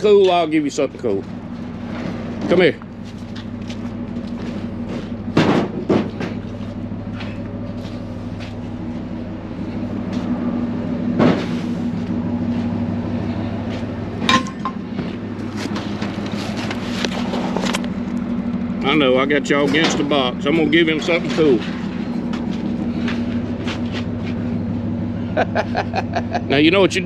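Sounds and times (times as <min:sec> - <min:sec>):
vehicle engine idling: 0:00.0 - 0:27.0
sharp metallic knocks and clanks: 0:04.9 - 0:06.4, 0:14.2 - 0:15.1.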